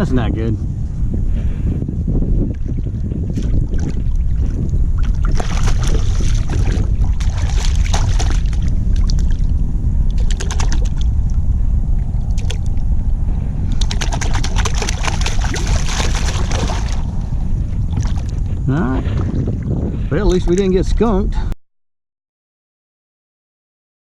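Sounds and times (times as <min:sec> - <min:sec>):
wind buffeting microphone: 0:00.0 - 0:21.6
water splashing: 0:02.5 - 0:11.4, 0:12.0 - 0:13.0, 0:13.7 - 0:19.7.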